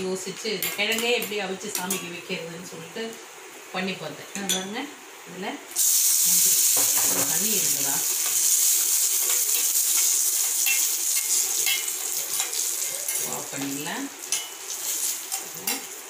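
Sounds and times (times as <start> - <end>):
nuts sizzling in hot ghee: 5.7 - 16.0.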